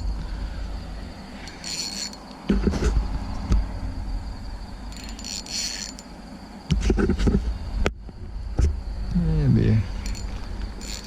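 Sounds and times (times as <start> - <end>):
fishing reel ratcheting whirr: 1.4 - 2.4, 4.9 - 6.1, 10.0 - 11.0
rod and reel handling thumps: 1.4 - 3.0, 4.9 - 6.1.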